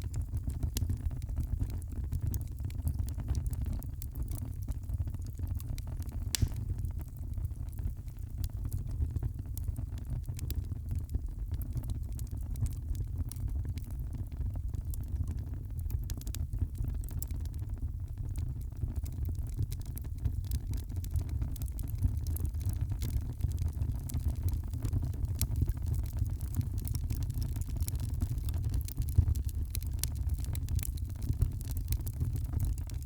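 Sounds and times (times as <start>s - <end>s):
fire crackling and popping: 0.1s - 33.0s
fire flames rumbling: 6.0s - 11.9s.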